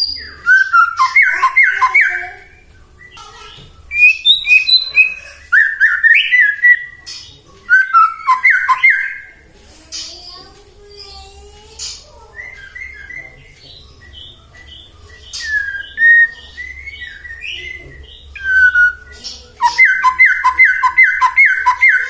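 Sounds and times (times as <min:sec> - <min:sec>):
songbird whistles and chirps: 0:00.0 - 0:22.0
bird repeating sharp notes: 0:07.7 - 0:09.4, 0:15.3 - 0:22.0.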